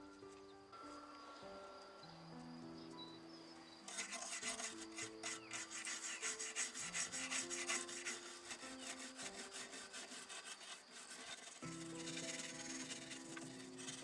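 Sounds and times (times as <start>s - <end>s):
slow melodic background music: 0.0s - 10.3s, 11.6s - 14.0s
hand abrasive rasping: 3.9s - 14.0s.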